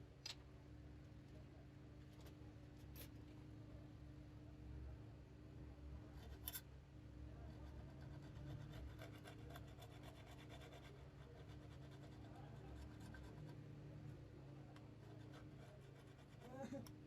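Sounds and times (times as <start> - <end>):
small hand tools scratching: 7.9 - 13.5.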